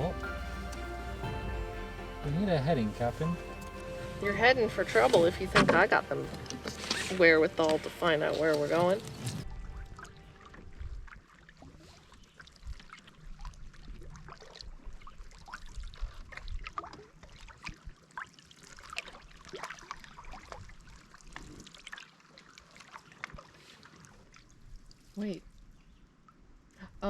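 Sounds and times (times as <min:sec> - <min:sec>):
canoe paddles in water: 0:00.0 - 0:26.1
water splashes and drips: 0:00.0 - 0:26.4.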